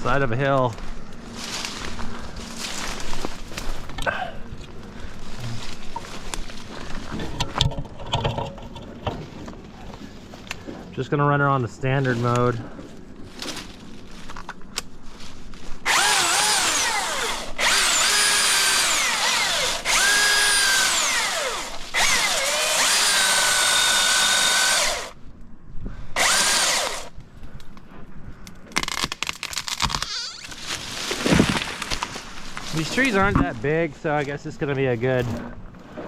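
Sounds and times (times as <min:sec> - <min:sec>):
electric chainsaw whining: 0:15.8 - 0:25.2, 0:26.2 - 0:27.1, 0:29.7 - 0:30.6.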